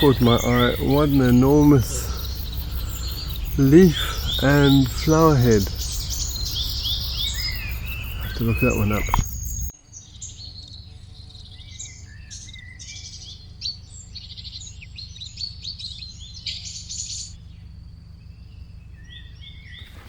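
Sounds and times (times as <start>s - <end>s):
steady low rumble: 0.0s - 9.7s
birds singing: 0.0s - 20.0s.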